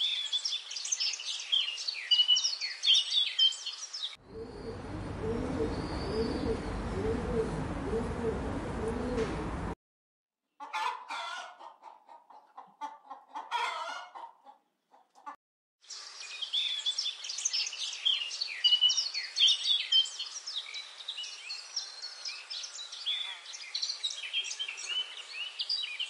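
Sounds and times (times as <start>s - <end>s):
songbirds chirping: 0.0s - 9.8s, 15.2s - 26.0s
chicken clucking: 10.6s - 15.4s.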